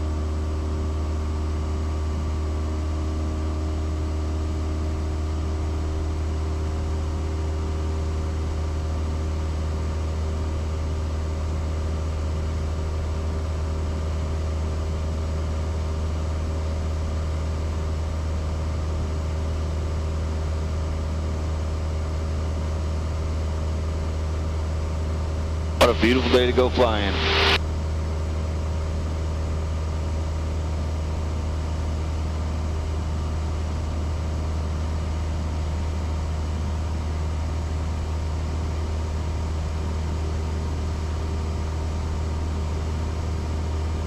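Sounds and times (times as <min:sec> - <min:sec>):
aircraft engine and propeller drone: 0:00.0 - 0:44.0.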